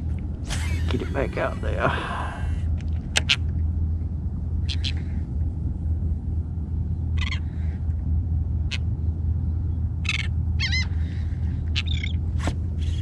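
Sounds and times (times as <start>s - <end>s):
gulls calling: 0.0s - 3.5s, 4.6s - 5.2s, 7.0s - 7.9s, 10.0s - 13.0s
steady low rumble: 0.0s - 13.0s.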